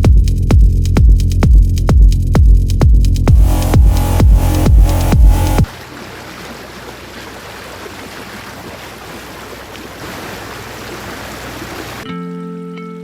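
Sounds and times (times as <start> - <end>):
sea water rushing: 3.4 - 12.1
wind: 5.6 - 12.1.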